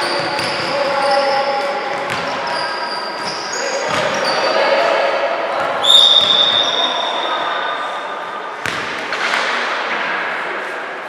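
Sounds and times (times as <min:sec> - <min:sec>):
shoe squeal: 0:00.0 - 0:04.7, 0:05.8 - 0:08.4.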